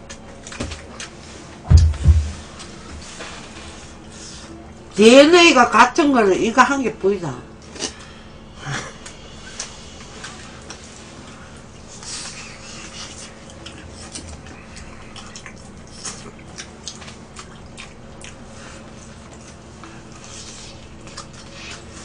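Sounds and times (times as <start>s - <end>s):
steady low hum: 0.0s - 22.0s
wet mouth clicks and smacks: 15.2s - 18.4s.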